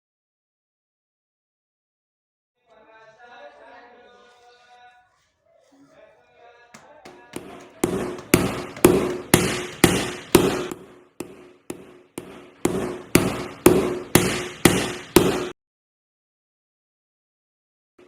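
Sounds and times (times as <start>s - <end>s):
hammer blows with ringing tail: 7.1s - 15.5s.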